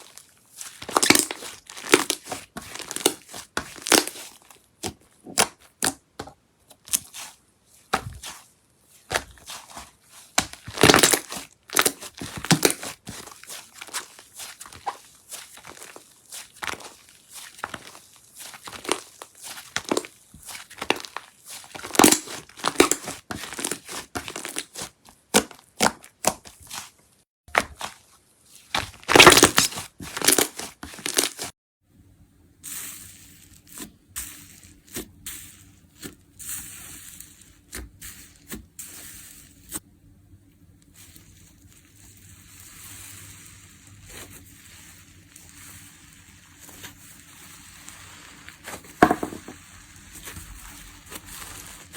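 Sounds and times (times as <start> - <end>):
slime crackling and popping: 0.0 - 6.1, 9.0 - 26.9, 28.6 - 31.5.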